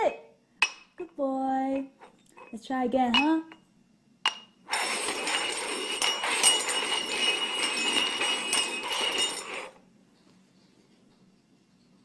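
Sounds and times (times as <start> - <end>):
cups scraping and clinking on table: 1.8 - 2.6, 4.3 - 9.8.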